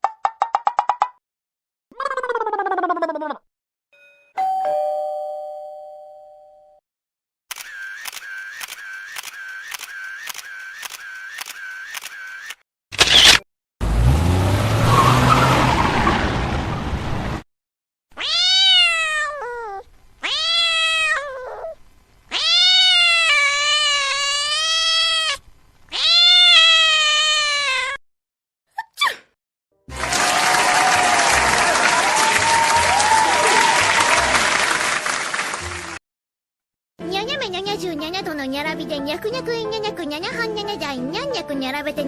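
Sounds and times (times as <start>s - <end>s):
cat meowing: 18.2s - 28.0s.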